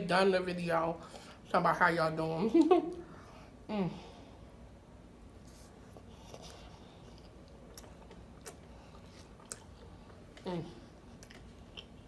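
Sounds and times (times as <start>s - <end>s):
person chewing food: 5.4s - 12.0s.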